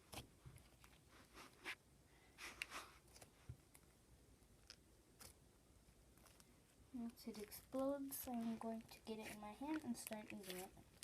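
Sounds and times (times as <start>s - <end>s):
faint handling clicks and rustles: 6.2s - 11.0s.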